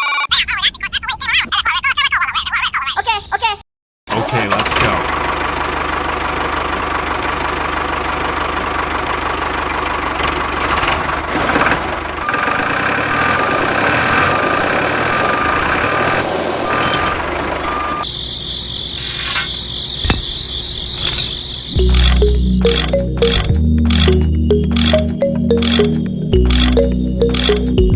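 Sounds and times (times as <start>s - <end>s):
tractor engine running: 18.7s - 27.9s.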